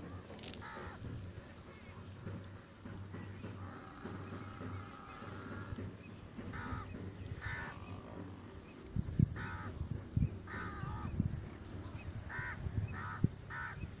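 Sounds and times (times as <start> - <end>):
bird cawing: 0.6 - 1.0, 3.6 - 8.5, 9.4 - 9.8, 10.5 - 11.2, 12.2 - 13.9.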